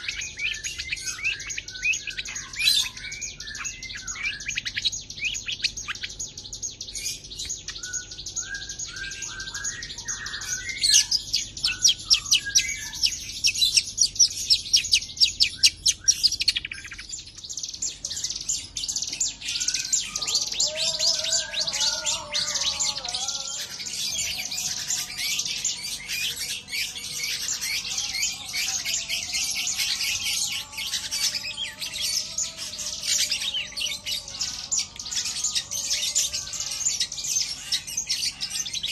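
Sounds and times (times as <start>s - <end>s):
shrike singing: 0.0s - 38.9s.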